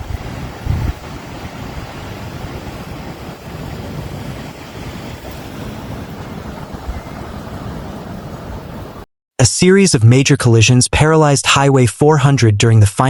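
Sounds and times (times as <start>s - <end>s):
wind gusting against microphone: 0.0s - 9.0s.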